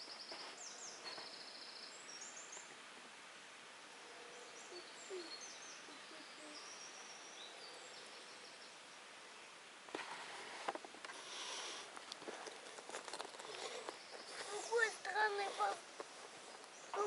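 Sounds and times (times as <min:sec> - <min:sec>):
small birds chirping: 0:00.0 - 0:02.9, 0:04.0 - 0:17.0
steady hiss: 0:00.0 - 0:17.0.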